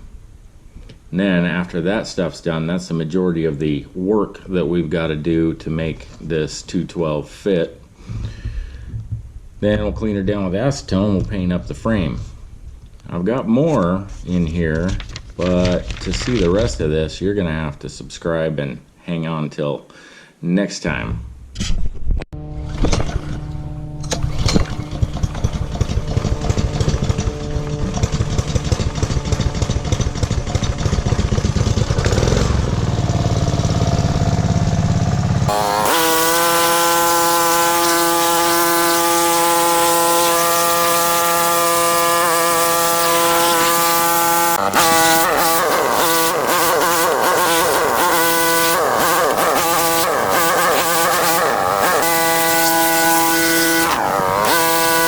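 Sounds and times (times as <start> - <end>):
pressure washer engine running: 23.2 - 55.0.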